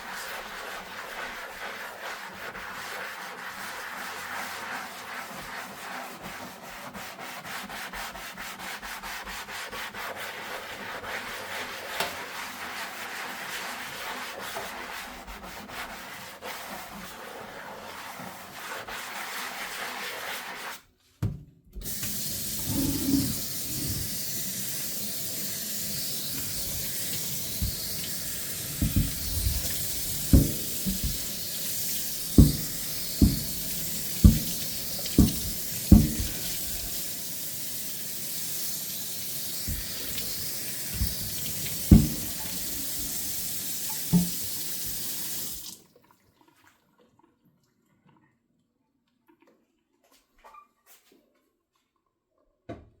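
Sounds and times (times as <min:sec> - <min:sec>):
sponge scrubbing a dish: 0:00.0 - 0:21.0, 0:21.8 - 0:45.7
kitchen faucet running: 0:21.8 - 0:45.8
dishes knocking against sink: 0:28.8 - 0:31.5, 0:32.2 - 0:36.9, 0:41.0 - 0:42.6, 0:44.1 - 0:44.4.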